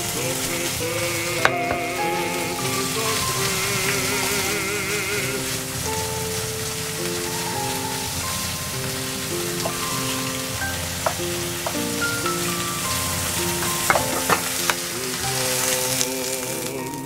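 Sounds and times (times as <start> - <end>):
tofu sizzling in oil: 0.0 - 16.8
wooden spatula stirring: 0.0 - 16.8
spatula knocking on pan: 10.9 - 12.4.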